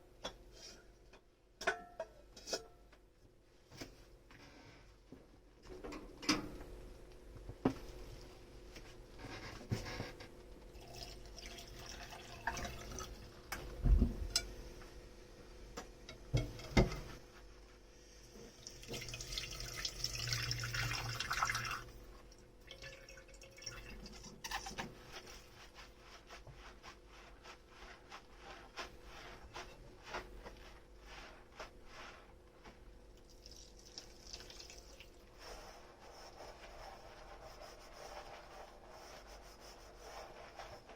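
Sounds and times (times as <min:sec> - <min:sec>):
water running: 0:10.7 - 0:13.4, 0:18.4 - 0:25.8, 0:33.2 - 0:37.4.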